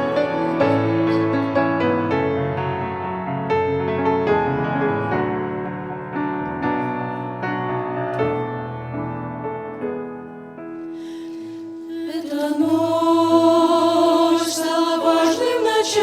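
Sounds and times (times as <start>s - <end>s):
slow piano playing: 0.0s - 12.2s.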